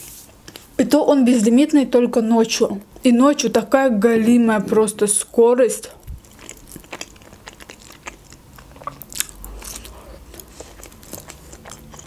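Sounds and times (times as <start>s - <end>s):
person chewing food: 6.0s - 12.0s.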